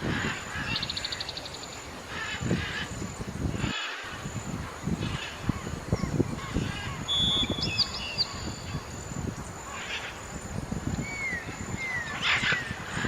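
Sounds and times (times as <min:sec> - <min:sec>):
small birds chirping: 0:04.3 - 0:13.0.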